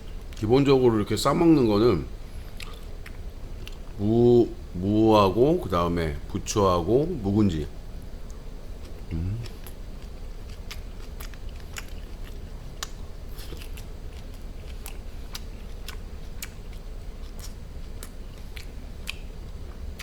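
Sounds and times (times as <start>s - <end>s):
steady low hum: 0.0s - 20.0s
close-miked chewing: 2.3s - 4.0s, 8.2s - 20.0s.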